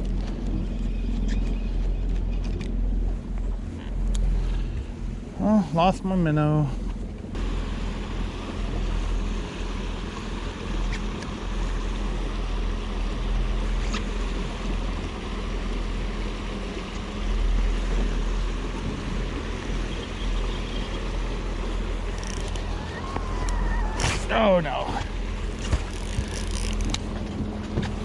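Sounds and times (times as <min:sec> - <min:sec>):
boat motor hum: 0:00.0 - 0:28.0
wind rumble on microphone: 0:00.0 - 0:28.0
rushing water: 0:07.4 - 0:28.0.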